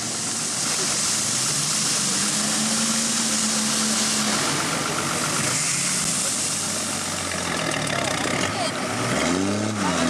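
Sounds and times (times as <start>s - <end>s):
strong hiss: 0.0s - 7.5s
off-road engines running under load: 0.0s - 10.0s.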